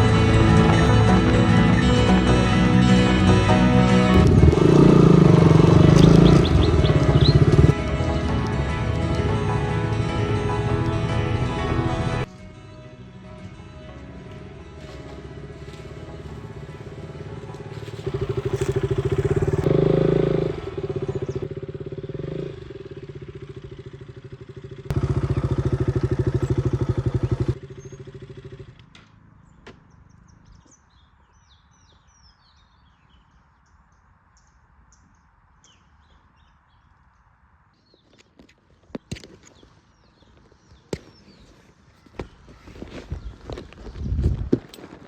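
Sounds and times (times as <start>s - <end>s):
motorcycle engine revving: 0.0s - 7.8s, 14.8s - 30.2s
faint bird chirps: 5.9s - 7.6s.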